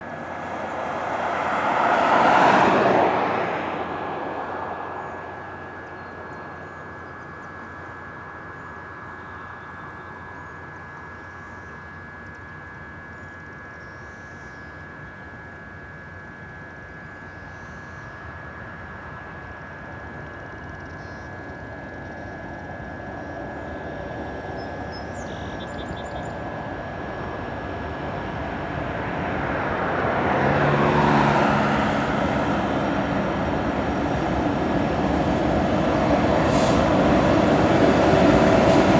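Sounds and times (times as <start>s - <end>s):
vehicle passing by: 0.0s - 6.0s, 26.7s - 38.9s
faint constant high tone: 3.8s - 29.6s.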